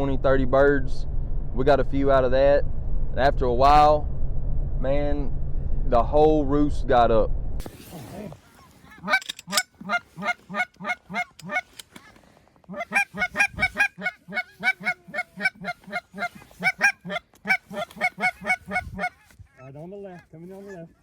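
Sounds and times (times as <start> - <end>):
goose honking: 8.3 - 12.1, 12.7 - 21.0.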